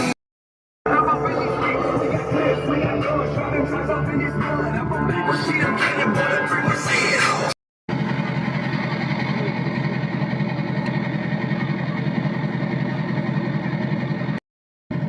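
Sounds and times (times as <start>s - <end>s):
rap song: 0.8s - 7.6s
truck engine idling: 7.2s - 15.0s.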